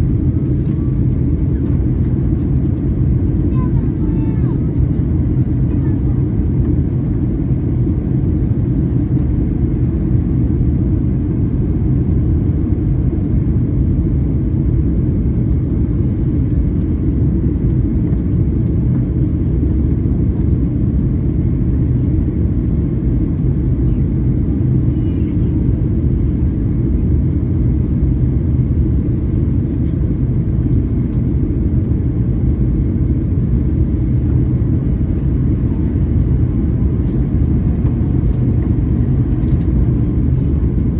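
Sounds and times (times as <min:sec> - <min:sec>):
airliner cabin engine rumble: 0:00.0 - 0:40.9.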